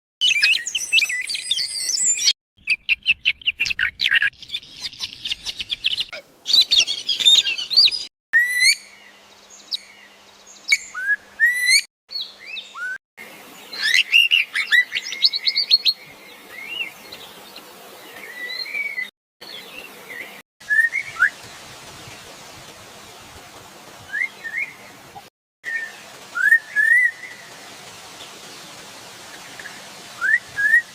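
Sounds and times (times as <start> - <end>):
small birds chirping: 0.2 - 8.1
bird trill: 0.2 - 8.9
sharp rising whistled bird notes: 6.5 - 8.8.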